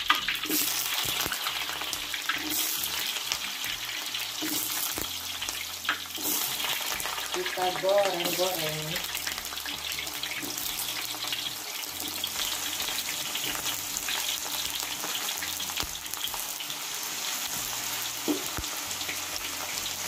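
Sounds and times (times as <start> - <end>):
potatoes sizzling in hot oil: 0.0 - 20.0.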